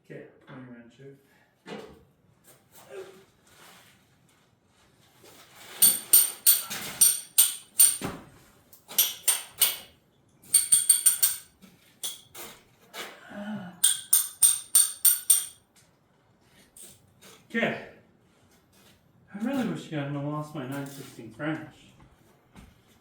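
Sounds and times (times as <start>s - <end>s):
socket ratchet clicking: 10.6s - 12.2s.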